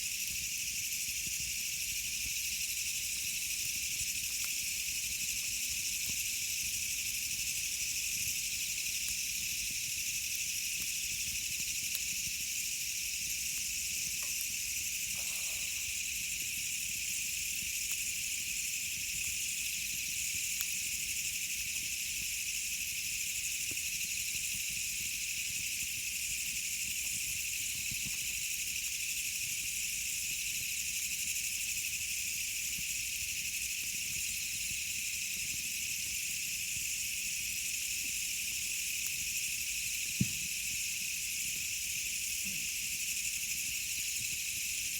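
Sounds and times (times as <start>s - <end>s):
insect chorus: 0.0s - 44.9s
campfire crackling: 13.5s - 18.0s.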